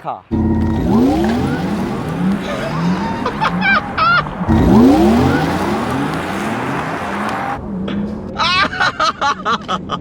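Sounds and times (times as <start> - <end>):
car accelerating with rushing sweep: 0.3 - 8.3
tire squeal: 0.3 - 8.4.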